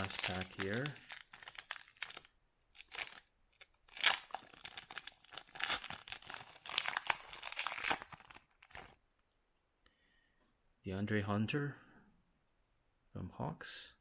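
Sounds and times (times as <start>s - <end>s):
plastic wrapper tearing and crinkling: 0.0s - 9.0s.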